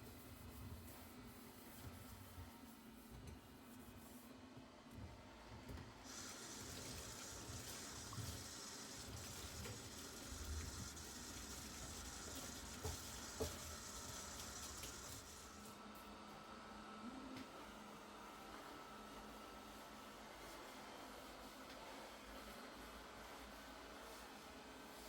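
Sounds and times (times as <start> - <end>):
tap water running into sink: 6.0 - 15.5.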